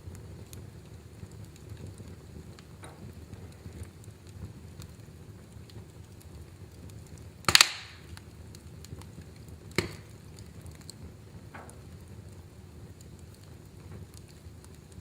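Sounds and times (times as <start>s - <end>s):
flames rumbling: 0.0s - 15.0s
wood fire crackling: 0.0s - 15.0s
sharp pop of burning wood: 2.6s - 5.0s, 5.6s - 12.3s.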